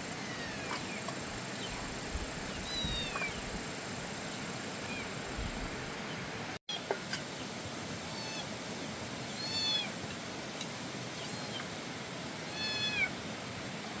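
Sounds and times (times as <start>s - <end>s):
steady hiss: 0.0s - 14.0s
high-pitched animal calls: 2.6s - 3.4s, 12.5s - 13.1s.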